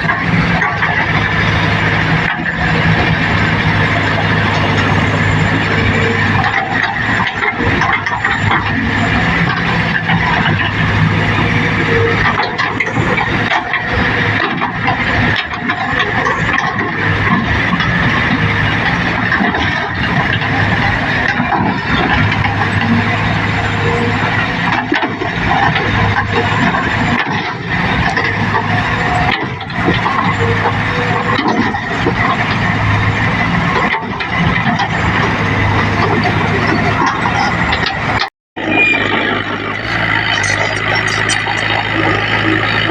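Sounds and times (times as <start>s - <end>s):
diesel machinery running: 0.0s - 42.9s
metallic clanks and rattles: 39.6s - 42.9s.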